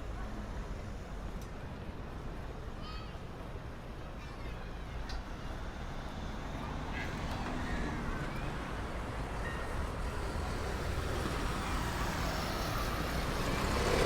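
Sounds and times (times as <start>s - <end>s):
traffic rumble: 3.4s - 14.0s.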